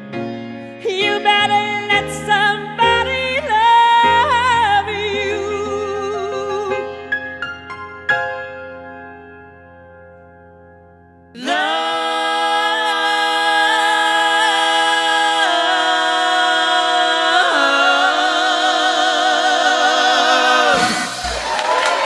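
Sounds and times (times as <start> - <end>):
piano chord: 0.0 - 11.7
audience applause: 20.8 - 22.0.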